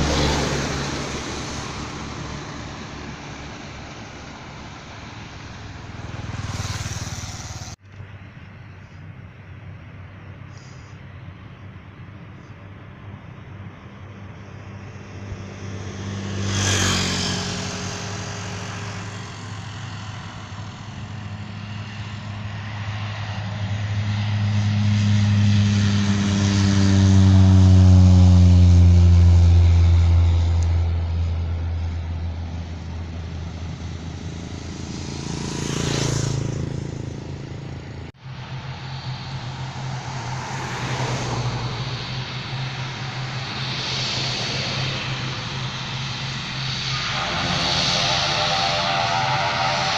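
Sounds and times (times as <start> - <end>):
propeller airplane passing: 0.0 - 49.9.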